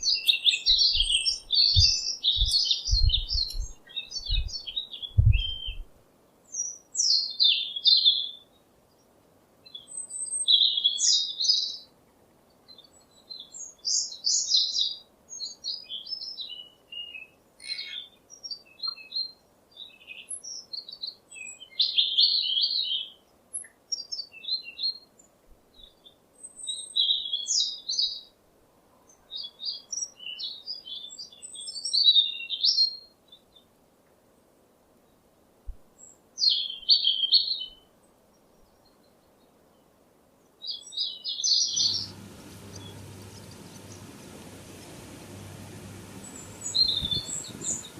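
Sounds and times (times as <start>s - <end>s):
songbird warbling: 0.0s - 5.8s, 41.6s - 47.9s
soft bird twittering: 0.0s - 5.9s, 41.5s - 47.9s.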